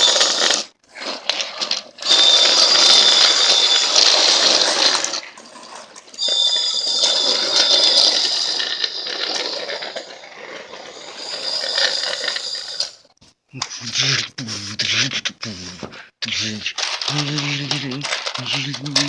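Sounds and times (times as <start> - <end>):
wheel rattle: 0.0 - 13.0
toy train motor whine: 0.0 - 13.1, 16.8 - 19.0.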